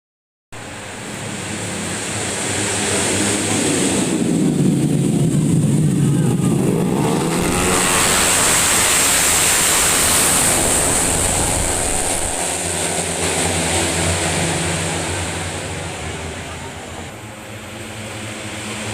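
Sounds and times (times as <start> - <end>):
scooters racing at high revs: 2.8 - 17.2.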